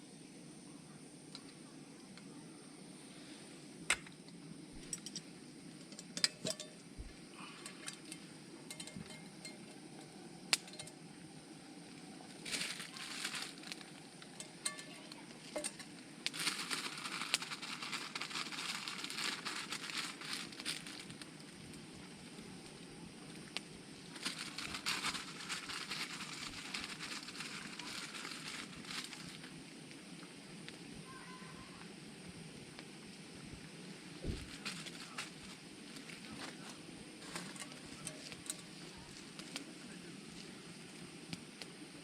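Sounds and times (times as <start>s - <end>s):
cookware clinking and knocking: 5.9s - 6.8s
food sizzling in a hot pan: 12.3s - 20.7s.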